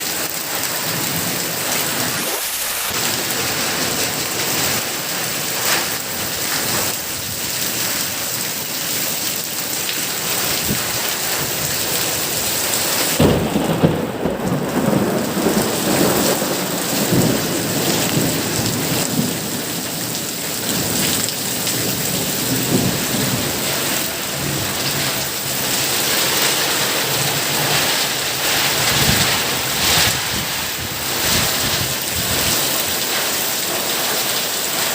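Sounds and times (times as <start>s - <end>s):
heavy rain pouring: 0.0s - 34.9s
rumbling thunder clap: 13.2s - 19.8s.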